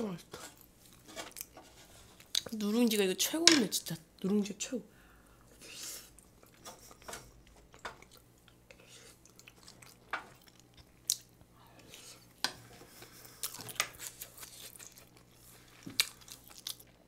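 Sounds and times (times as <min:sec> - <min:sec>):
wooden spoon scraping a pan: 0:00.0 - 0:02.3
chewing crispy rice: 0:05.6 - 0:17.0.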